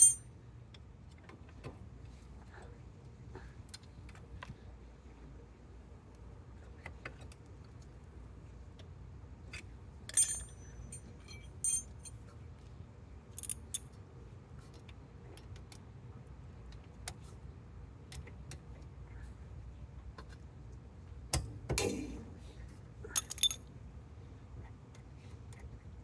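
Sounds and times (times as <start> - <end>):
small metal objects clinking: 0.0 - 0.2, 10.1 - 12.1, 13.4 - 13.8, 23.2 - 23.6
low steady hum: 0.0 - 0.8, 8.0 - 13.9, 17.8 - 26.0.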